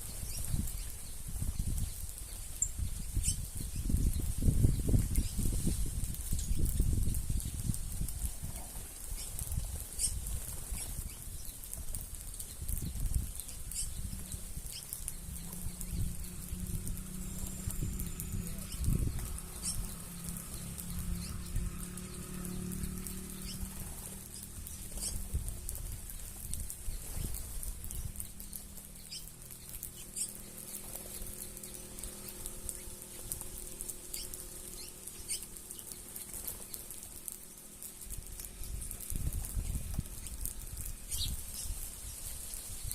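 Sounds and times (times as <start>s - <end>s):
birds chirping: 0.0s - 42.9s
wing flutters: 0.0s - 42.9s
pecking ticks: 11.0s - 41.8s
low rumble: 12.8s - 28.9s.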